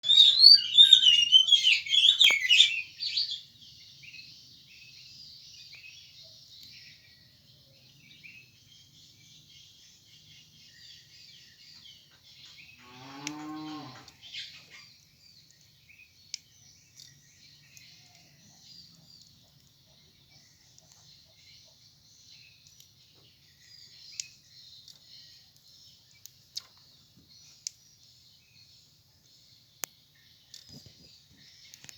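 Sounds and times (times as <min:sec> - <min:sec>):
bird chirps: 0:00.0 - 0:31.9
cow mooing: 0:12.8 - 0:14.1.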